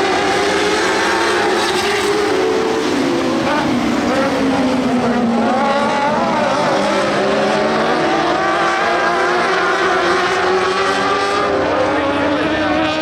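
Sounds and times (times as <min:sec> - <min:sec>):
race car engines passing: 0:00.0 - 0:13.0.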